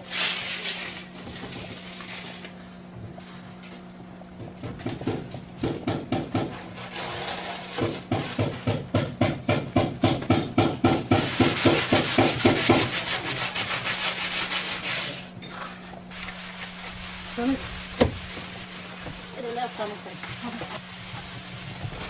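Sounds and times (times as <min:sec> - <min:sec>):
hand tool scraping wood: 0:04.6 - 0:22.0.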